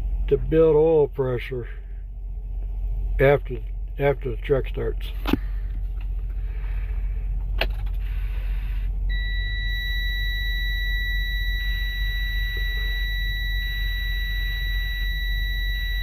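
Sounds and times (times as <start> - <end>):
diesel engine idling: 0.0 - 16.0
dashboard warning buzzer: 9.1 - 16.0.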